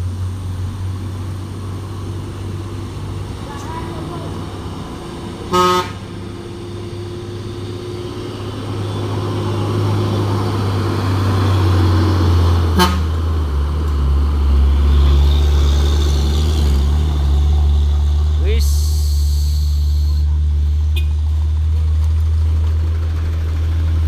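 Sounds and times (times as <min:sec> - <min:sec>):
heavy truck engine labouring: 0:00.0 - 0:24.0
truck horn toot: 0:05.4 - 0:06.2, 0:12.7 - 0:13.2, 0:19.4 - 0:20.2, 0:20.9 - 0:21.2.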